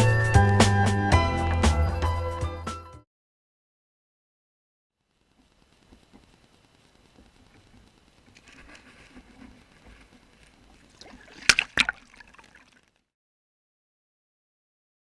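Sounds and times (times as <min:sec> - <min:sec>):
water sloshing and trickling: 0:10.7 - 0:13.1.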